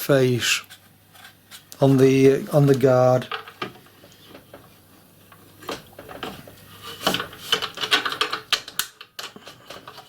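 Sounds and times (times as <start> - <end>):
small parts clicking and knocking: 7.0 - 10.0.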